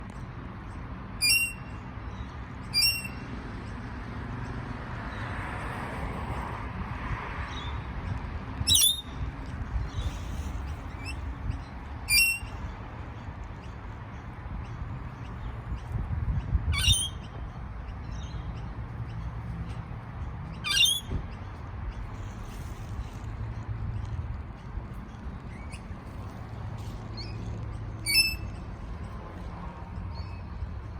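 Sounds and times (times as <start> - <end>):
parrot shrill calls: 8.7 - 9.1, 12.1 - 12.5, 16.7 - 17.2, 20.6 - 21.1, 28.0 - 28.4.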